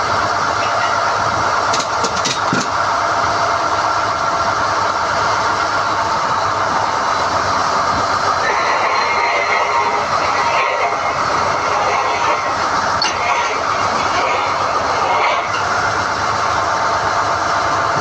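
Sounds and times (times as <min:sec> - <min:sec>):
drilling rig running: 0:00.0 - 0:18.0
high whine: 0:05.3 - 0:18.0.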